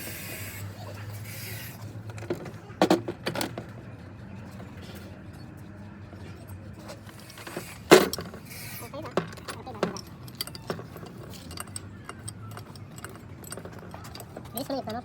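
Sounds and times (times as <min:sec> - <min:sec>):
metal tools clinking: 0:06.8 - 0:15.0.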